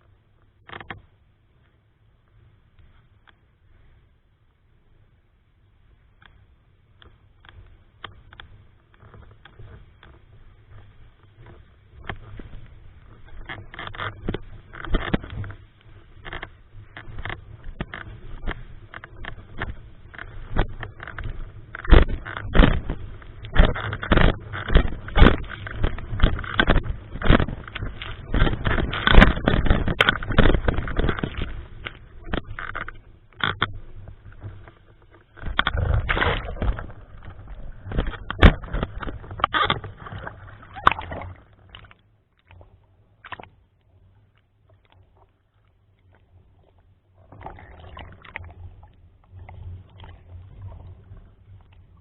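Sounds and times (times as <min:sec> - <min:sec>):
small clicks: 0:00.4 - 0:01.8, 0:06.2 - 0:46.2
wind buffeting microphone: 0:17.2 - 0:32.6
rumbling thumps: 0:19.2 - 0:31.6, 0:35.4 - 0:41.4
splashing water: 0:35.4 - 0:43.5, 0:44.8 - 0:52.0.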